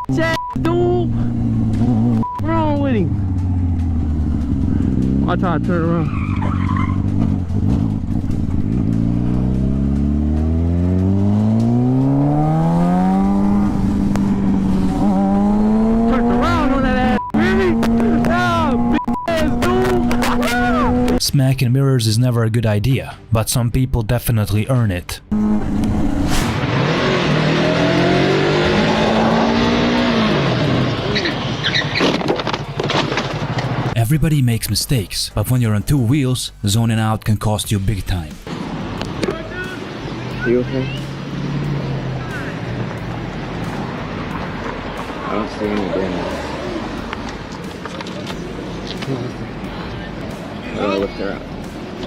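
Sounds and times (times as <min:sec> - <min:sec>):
wind and road noise: 0:00.0 - 0:21.2, 0:24.5 - 0:52.0
motorcycle engine accelerating: 0:00.6 - 0:21.2, 0:25.3 - 0:34.0.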